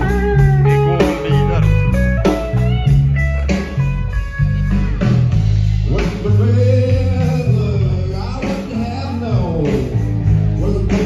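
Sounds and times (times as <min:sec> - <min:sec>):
live blues band: 0:00.0 - 0:11.0.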